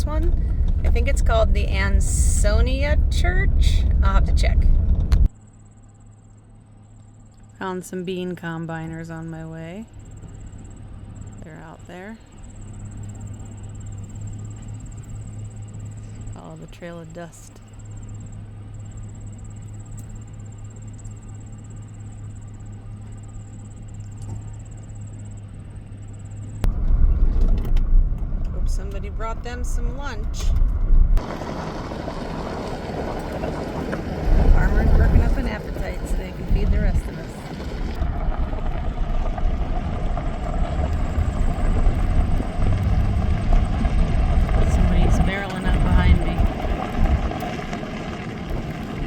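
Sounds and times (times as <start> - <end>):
vehicle driving on dirt road: 0.0 - 49.0.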